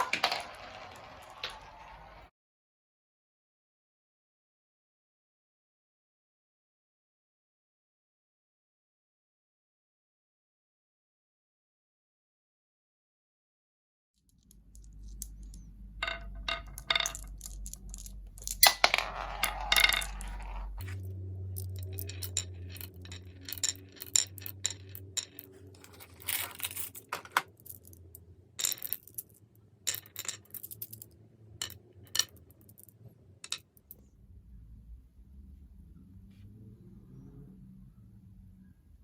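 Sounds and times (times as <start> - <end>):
glass marbles rolling and clinking: 0.0 - 2.3, 14.5 - 34.0.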